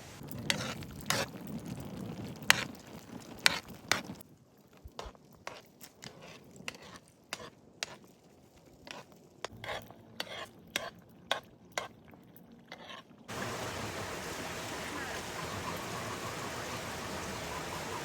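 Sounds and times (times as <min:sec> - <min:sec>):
steady rushing hiss: 0:00.0 - 0:00.3, 0:13.3 - 0:18.0.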